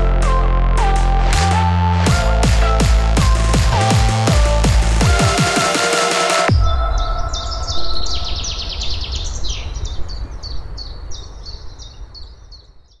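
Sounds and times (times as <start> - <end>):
music: 0.0 - 6.9
songbird chirps: 6.5 - 13.0.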